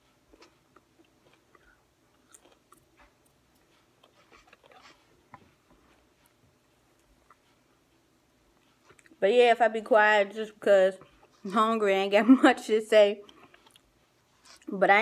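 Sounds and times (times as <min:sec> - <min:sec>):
chewing food: 0:00.0 - 0:09.2, 0:11.0 - 0:11.8, 0:13.2 - 0:14.7.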